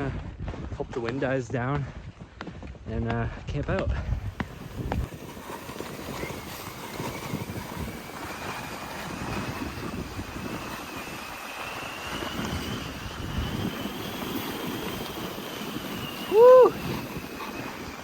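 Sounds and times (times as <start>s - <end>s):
wind gusting across microphone: 0.0s - 18.0s
thin rising whistle: 5.2s - 18.0s.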